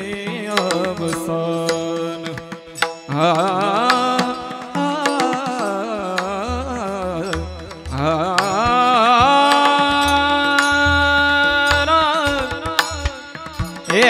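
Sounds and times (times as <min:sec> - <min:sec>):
man singing devotional melody: 0:00.0 - 0:14.0.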